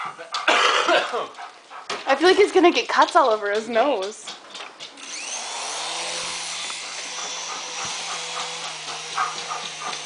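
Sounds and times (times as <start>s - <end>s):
toy helicopter motor whirring: 5.0s - 10.0s.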